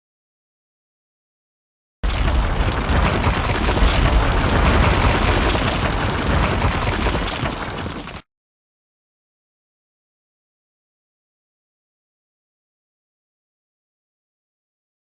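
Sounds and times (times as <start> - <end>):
rubble noise: 2.0 - 8.2
wall breaking crash: 2.0 - 8.2.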